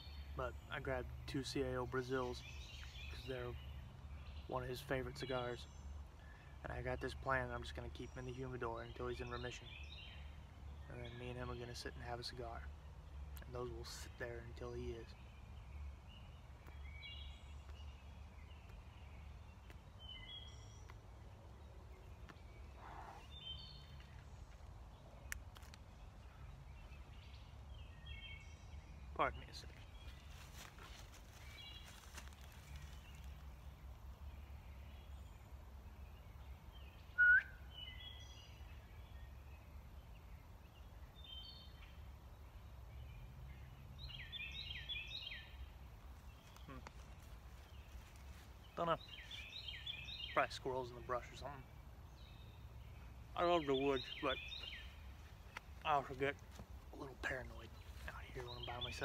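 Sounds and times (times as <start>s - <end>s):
faint bird calls: 13.4s - 25.4s, 26.0s - 59.0s.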